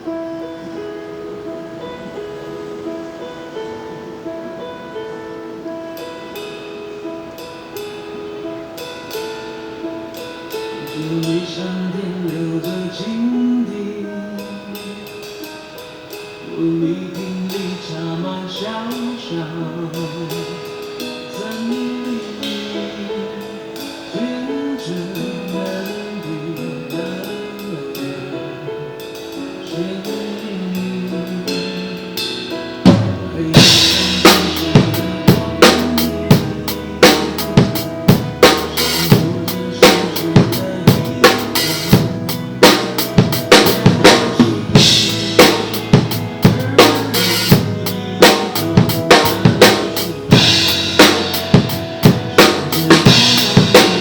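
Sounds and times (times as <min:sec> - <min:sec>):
melodic backing track: 0:00.0 - 0:54.0
drum kit beat: 0:30.8 - 0:54.0.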